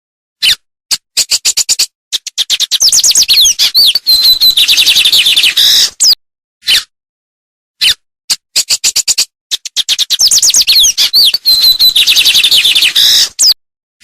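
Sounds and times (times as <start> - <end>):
songbird singing whistles and trills: 1.2 - 6.8, 8.6 - 13.6.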